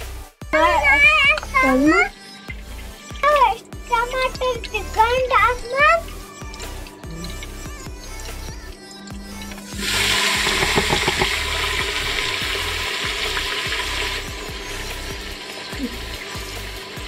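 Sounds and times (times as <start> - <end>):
faint background music: 0.0 - 17.0
food sizzling in hot oil: 9.3 - 17.0.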